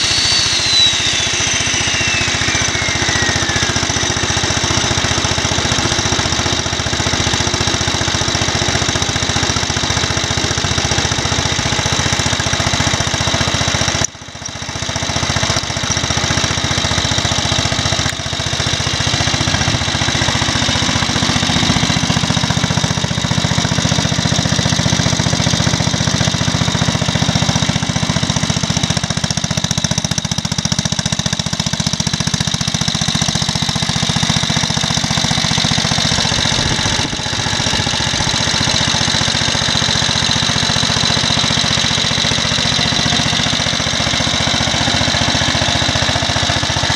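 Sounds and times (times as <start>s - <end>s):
single-cylinder engine running: 0.0s - 46.9s.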